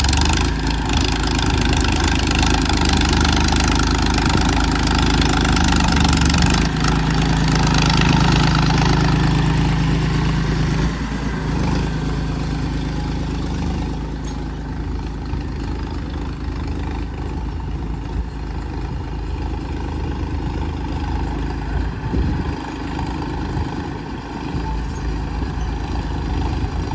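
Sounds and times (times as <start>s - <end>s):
tractor diesel engine running: 0.0s - 26.9s.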